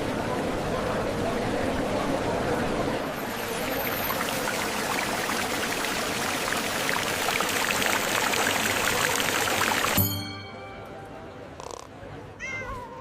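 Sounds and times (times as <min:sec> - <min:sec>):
water pouring and splashing: 0:03.0 - 0:10.1.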